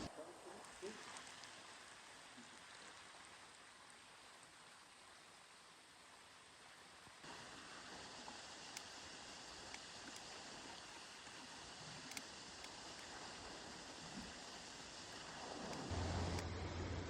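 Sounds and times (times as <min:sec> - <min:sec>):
steady rain hiss: 0:00.0 - 0:17.0
low hum: 0:15.7 - 0:17.0.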